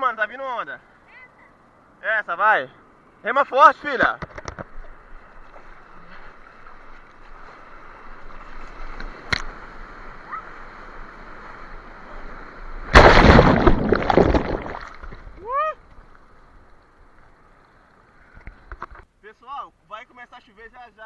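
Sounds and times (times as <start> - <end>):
loud rush of splashing water: 12.8 - 15.4
sea water sloshing: 12.8 - 15.4.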